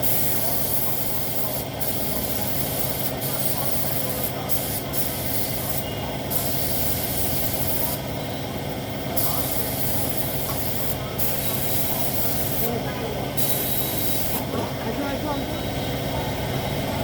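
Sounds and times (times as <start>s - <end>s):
paint spray gun hissing: 0.0s - 8.2s, 9.2s - 12.7s, 13.4s - 14.5s.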